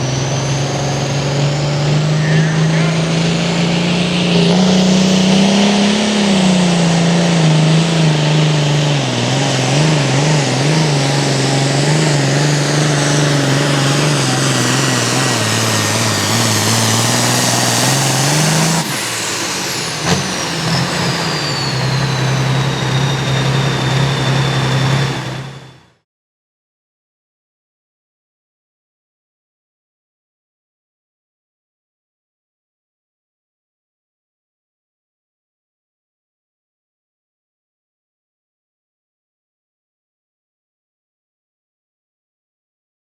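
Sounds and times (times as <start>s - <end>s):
high turbo whistle: 0.0s - 7.1s, 9.8s - 26.0s
tractor engine under load: 0.0s - 25.9s.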